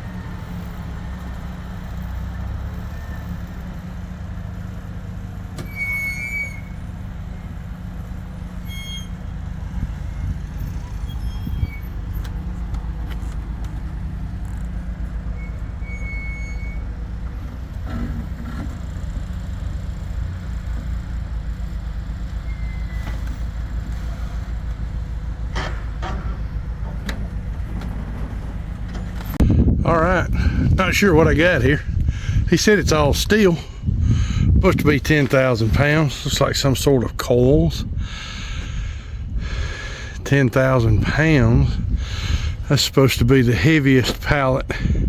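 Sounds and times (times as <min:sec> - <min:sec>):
engine idling: 0:00.0 - 0:45.0
short high-pitched squeals: 0:05.6 - 0:12.1, 0:15.2 - 0:17.0, 0:22.2 - 0:24.3.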